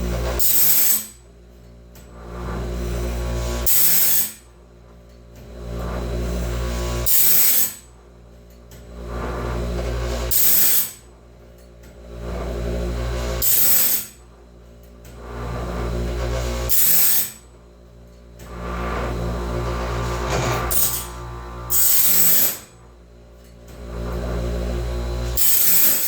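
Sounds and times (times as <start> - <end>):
steady motor hum: 0.0 - 26.0
grinding wheel on saw teeth: 0.4 - 1.2, 3.6 - 4.4, 10.2 - 11.0, 13.4 - 14.2, 15.4 - 17.4, 18.4 - 22.9, 24.1 - 26.0.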